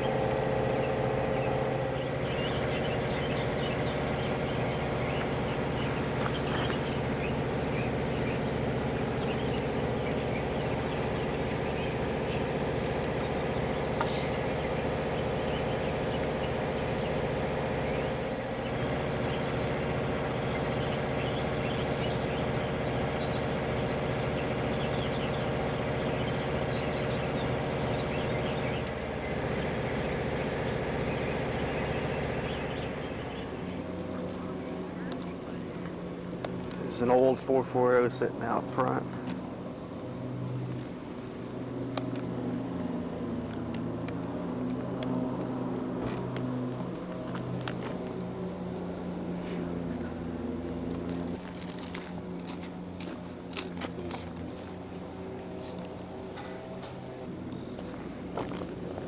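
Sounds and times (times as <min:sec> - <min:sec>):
train running hum and rumble: 0:38.4 - 0:59.0.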